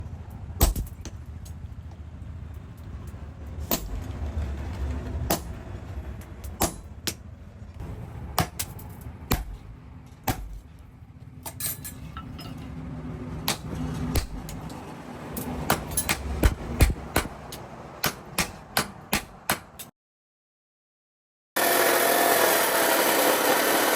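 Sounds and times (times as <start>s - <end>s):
hammer striking metal: 3.7s - 4.1s, 5.3s - 5.6s, 6.4s - 7.3s, 8.3s - 10.6s, 13.4s - 14.8s, 15.4s - 19.9s.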